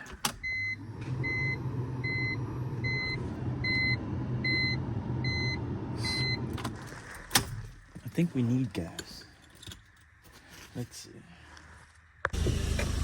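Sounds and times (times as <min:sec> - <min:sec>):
electronic warning beeps: 0:00.4 - 0:06.5.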